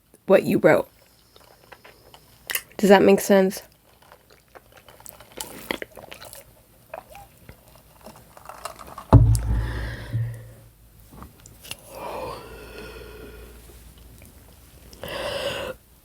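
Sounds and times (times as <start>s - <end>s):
chewing with wet mouth clicks: 3.7s - 8.2s
loud low thump: 9.2s - 10.6s.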